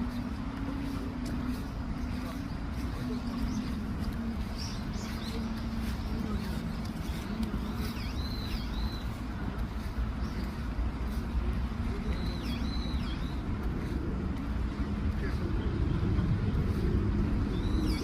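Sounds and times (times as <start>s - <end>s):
steady low rumble: 0.0s - 18.0s
birds calling high-pitched: 0.1s - 13.9s, 17.5s - 18.0s.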